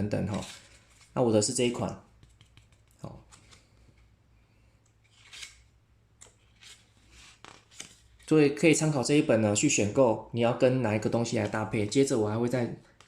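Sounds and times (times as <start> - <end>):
paper pages rustling: 5.0 - 8.4.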